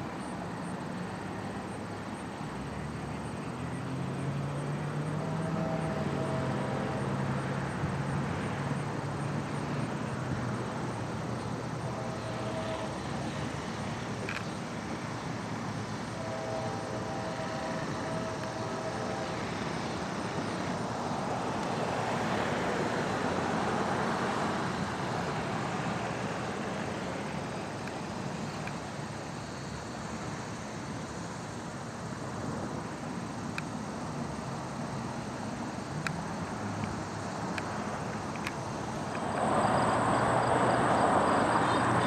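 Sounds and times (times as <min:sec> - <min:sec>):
traffic rumble: 0:00.0 - 0:42.0
faint distant horn: 0:03.9 - 0:07.6, 0:11.7 - 0:14.4, 0:16.0 - 0:22.3, 0:39.1 - 0:42.0
vehicle passing: 0:38.8 - 0:42.0.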